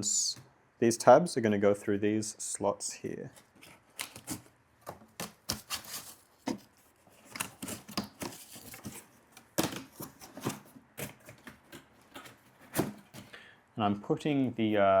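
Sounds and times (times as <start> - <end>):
cardboard tapping and crinkling: 3.4 - 13.4.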